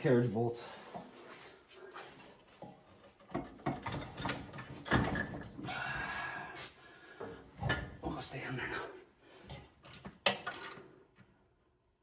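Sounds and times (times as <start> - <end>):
hose reel knocking and clunking: 2.5 - 5.6.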